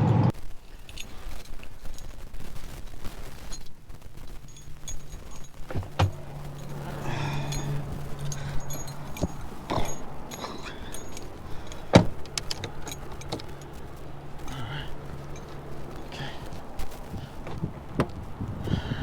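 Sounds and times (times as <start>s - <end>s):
truck engine humming: 0.0s - 19.0s
keys jangling: 0.6s - 19.0s
sharp clicks and knocks: 3.5s - 18.4s.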